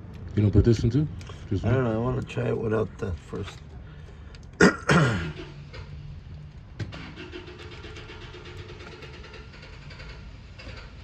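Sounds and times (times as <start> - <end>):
car engine cranking: 3.2 - 11.0.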